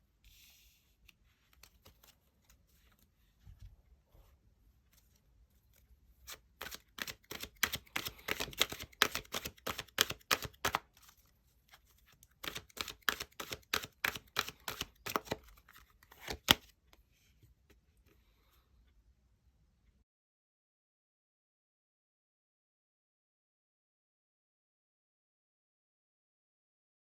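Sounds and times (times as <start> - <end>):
cards being shuffled: 1.0 - 3.0, 5.7 - 16.8.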